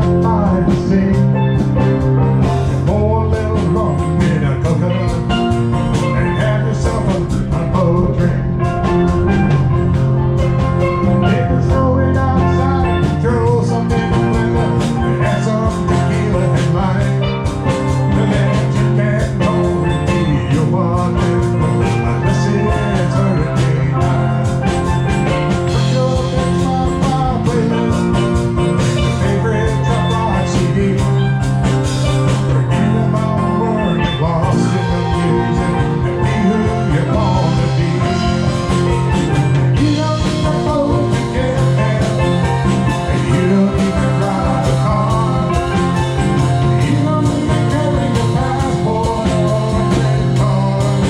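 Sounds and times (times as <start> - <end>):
bass guitar: 0.0 - 51.0
drum kit beat: 0.0 - 51.0
guitar: 0.0 - 51.0
steel drums: 2.5 - 37.0.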